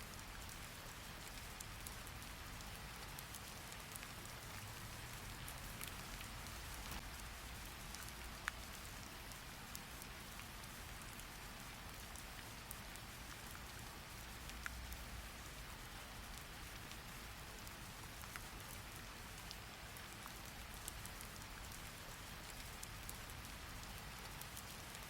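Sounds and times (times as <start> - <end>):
steady rain: 0.0 - 25.0
light ticks: 5.4 - 15.7, 16.3 - 25.0.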